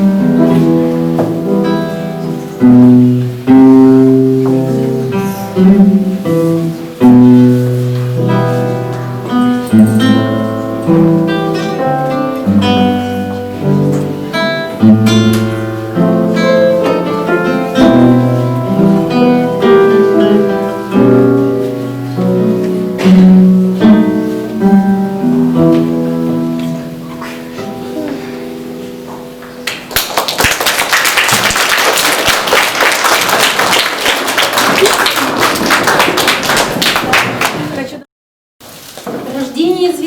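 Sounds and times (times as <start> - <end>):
solo acoustic guitar: 0.0 - 29.9.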